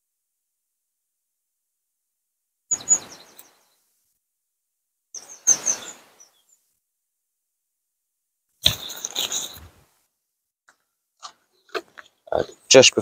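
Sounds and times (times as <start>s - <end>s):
small birds chirping: 2.7s - 4.0s, 5.1s - 6.8s, 8.6s - 9.9s, 10.7s - 13.0s.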